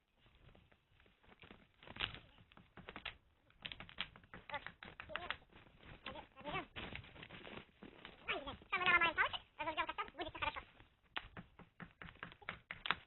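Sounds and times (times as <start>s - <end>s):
faint clicks and snaps: 10.1s - 13.0s.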